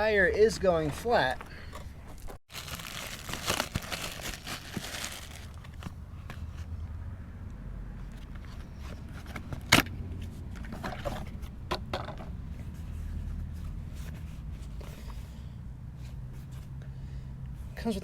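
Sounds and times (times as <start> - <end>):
packaging rustling: 2.2 - 6.0.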